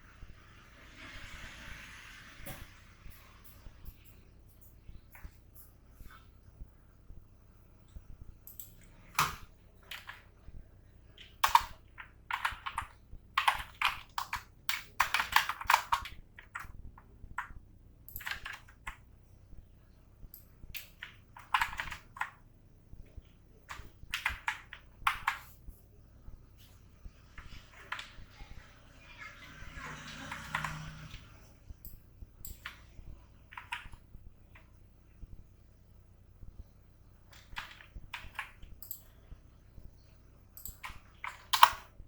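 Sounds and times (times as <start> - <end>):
computer keyboard typing: 8.4 - 10.4, 11.1 - 19.0, 20.3 - 22.4, 23.0 - 25.8, 29.2 - 34.7, 37.3 - 39.1, 40.6 - 42.0.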